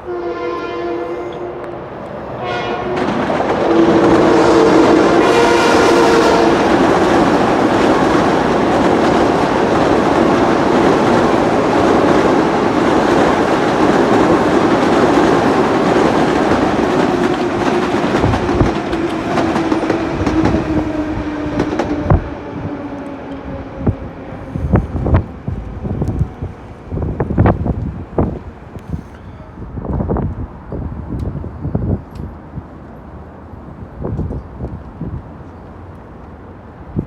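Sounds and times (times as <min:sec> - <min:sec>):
train horn: 0:00.0 - 0:07.0
train cars rushing past: 0:00.0 - 0:37.0
train wheels clicking over rail joints: 0:06.6 - 0:22.2.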